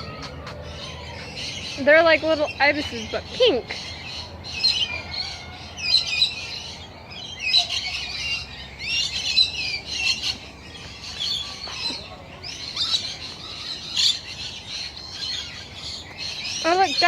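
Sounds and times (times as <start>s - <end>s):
flock of birds chirping: 0.0s - 17.0s.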